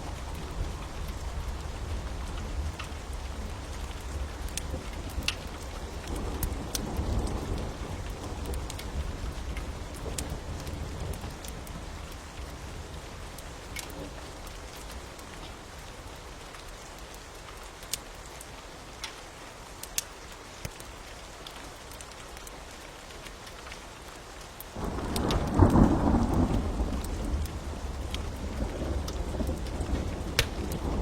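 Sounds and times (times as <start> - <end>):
fire crackling: 0.0 - 31.0
steady rain: 0.0 - 31.0
low roll of thunder: 24.8 - 31.0.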